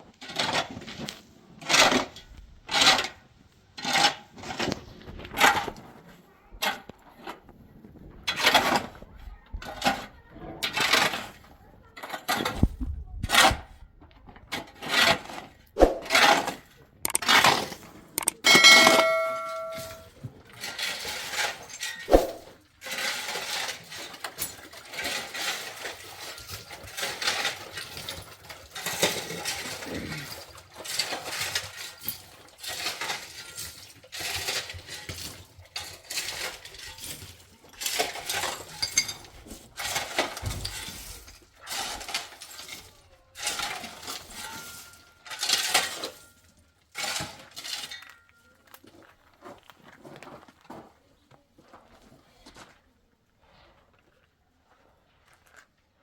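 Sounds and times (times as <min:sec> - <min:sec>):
metal scraping and clinking: 0:14.8 - 0:48.8.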